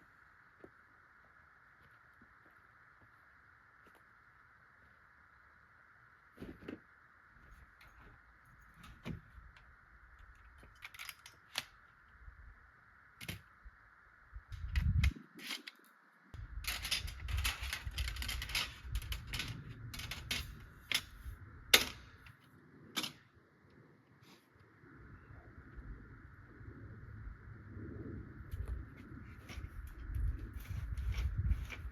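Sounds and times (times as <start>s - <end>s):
camping gear clicks and knocks: 10.3s - 11.8s, 14.6s - 16.0s.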